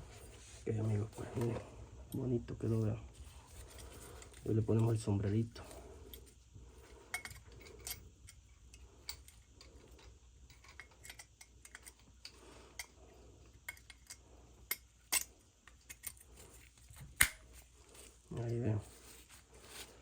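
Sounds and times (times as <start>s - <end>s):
faint low hum: 0.0s - 20.0s
small metal parts clicking: 7.1s - 13.0s, 13.6s - 16.3s.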